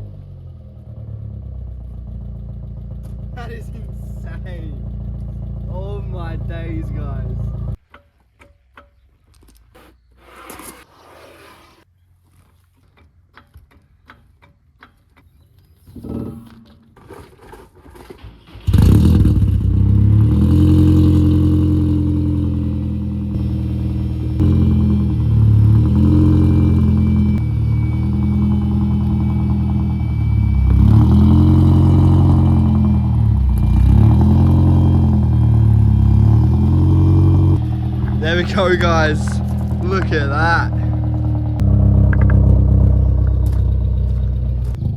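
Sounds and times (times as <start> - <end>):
car engine idling: 0.0 - 7.8, 18.4 - 44.9.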